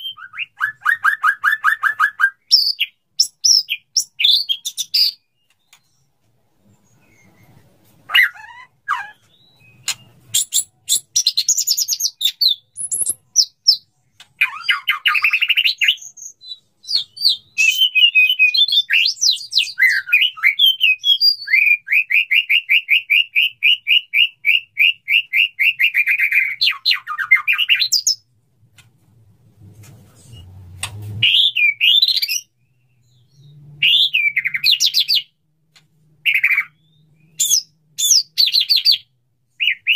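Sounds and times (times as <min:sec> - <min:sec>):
bird singing with clicks and whistles: 0:00.0 - 0:06.2, 0:06.8 - 0:28.3, 0:31.2 - 0:39.9.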